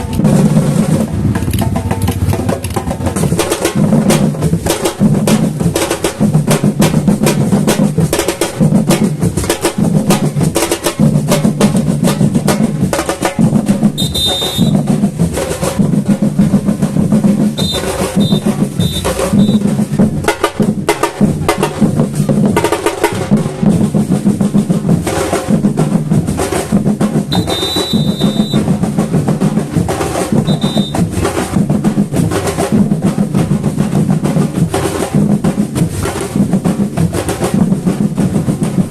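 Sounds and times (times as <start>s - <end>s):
deep bass drums: 0.0s - 37.1s
rattling snare drums: 0.0s - 38.9s
high whistle blasts: 14.0s - 14.9s, 17.6s - 19.6s, 27.3s - 28.6s, 30.4s - 31.0s.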